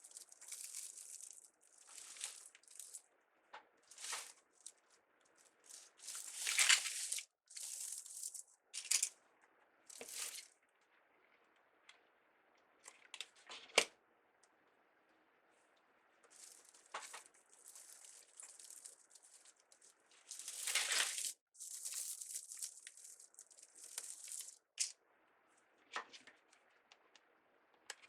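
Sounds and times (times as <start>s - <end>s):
mesh and ribbon rustling: 5.6s - 9.1s, 17.6s - 24.9s.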